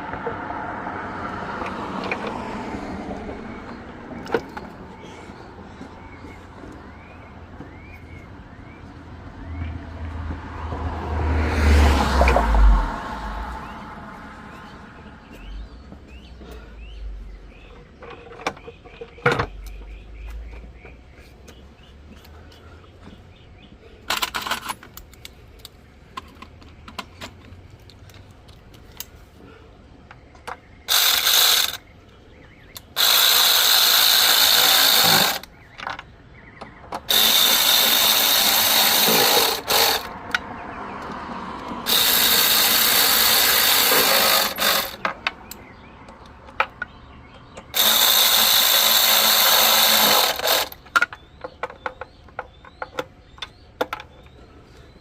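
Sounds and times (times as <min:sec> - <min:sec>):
small clicks and knocks: 0:24.1 - 0:29.2, 0:50.7 - 0:54.4
power ratchet running: 0:30.9 - 0:31.8, 0:32.8 - 0:35.5, 0:37.1 - 0:40.2, 0:41.8 - 0:45.0, 0:47.7 - 0:50.8.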